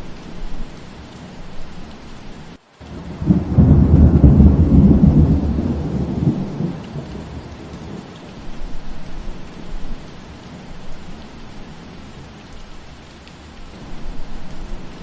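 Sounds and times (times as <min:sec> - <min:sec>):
steady rain: 0:00.0 - 0:15.0
thunder rumbling: 0:02.9 - 0:10.1.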